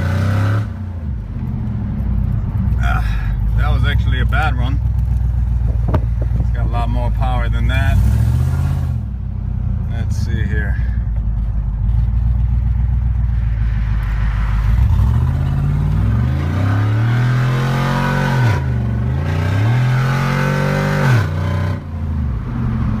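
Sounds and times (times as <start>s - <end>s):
car engine idling and accelerating: 0.0s - 23.0s.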